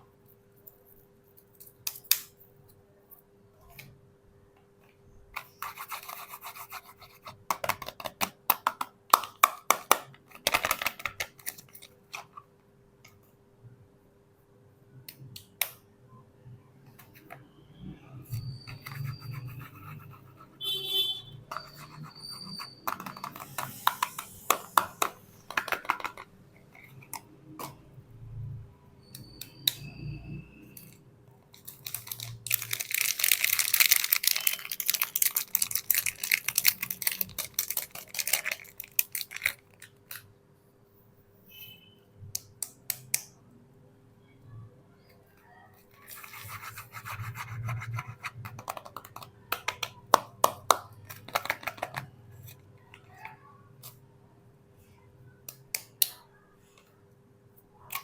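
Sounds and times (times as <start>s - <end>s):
packaging clicks: 31.6s - 40.2s
packaging crinkling and tearing: 31.6s - 40.2s.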